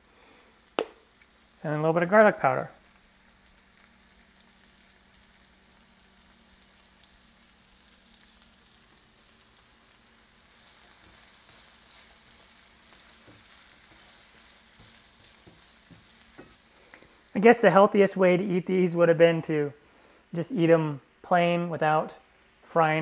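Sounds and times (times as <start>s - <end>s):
seeds sizzling in oil: 0.0s - 23.0s
utensil tapping pan: 13.2s - 17.2s.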